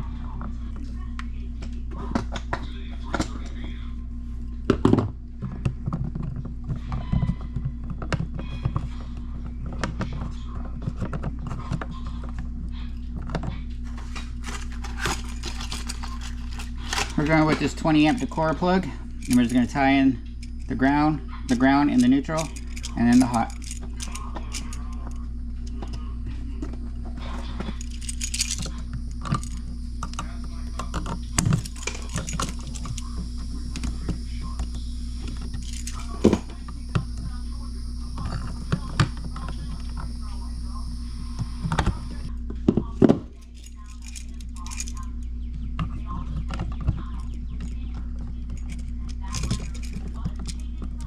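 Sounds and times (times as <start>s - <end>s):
steady low hum: 13.7s - 42.6s
clicks of handling electrical parts: 13.9s - 18.2s
tools clattering: 13.9s - 18.3s.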